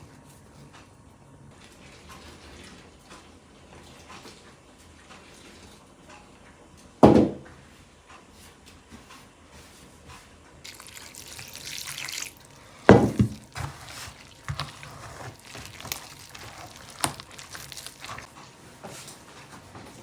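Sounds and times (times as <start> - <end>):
water running into basin: 10.6 - 18.3
clinks and drips: 10.7 - 18.3.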